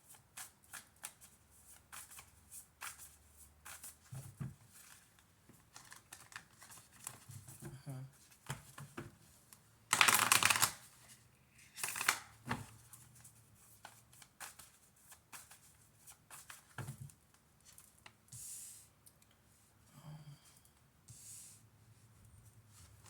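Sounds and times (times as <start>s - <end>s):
cards being shuffled: 9.9s - 10.8s, 11.7s - 12.3s.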